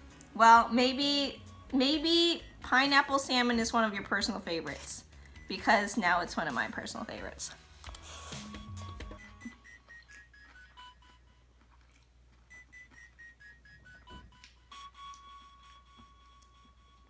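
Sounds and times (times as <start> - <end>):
beeping melody: 8.6 - 11.5, 12.5 - 17.0.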